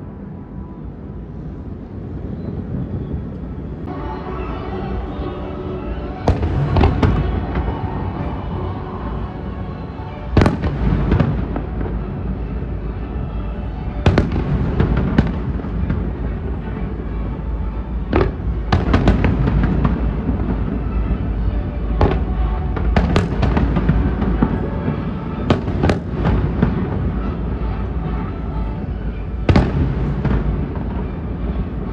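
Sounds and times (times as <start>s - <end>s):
distant fireworks rumble: 0.0s - 31.9s
fireworks sharp bangs: 5.9s - 8.4s, 9.9s - 12.7s, 14.0s - 31.9s.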